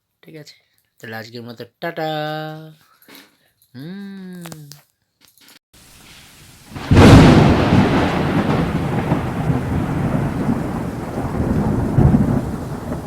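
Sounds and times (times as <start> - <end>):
rain hiss: 5.8 - 13.0
thunder boom and rumble: 6.7 - 13.0.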